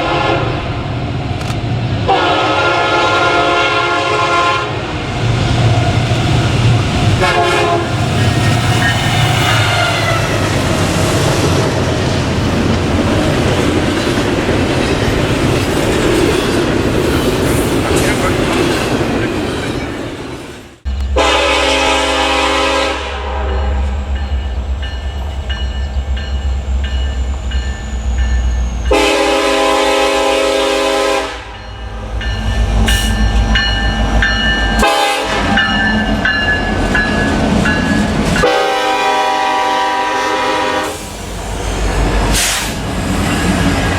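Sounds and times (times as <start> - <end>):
locomotive air horn blasts: 0.0 - 0.6, 2.1 - 4.8, 7.2 - 8.0, 9.3 - 10.5, 21.1 - 24.0, 28.9 - 31.6, 34.8 - 35.7, 38.4 - 41.1
train wheels on rails: 0.0 - 2.9, 4.7 - 43.9.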